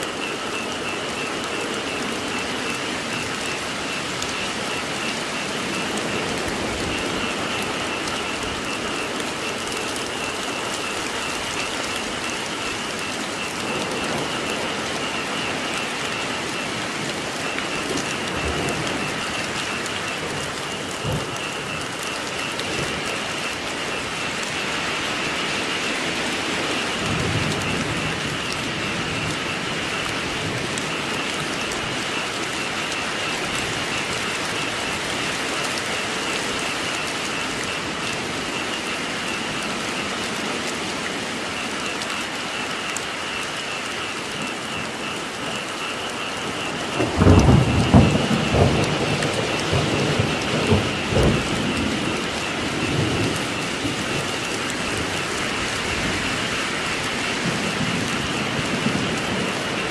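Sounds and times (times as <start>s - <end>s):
steady rainfall: 0.0s - 59.9s
low thunder rumble: 46.7s - 56.4s.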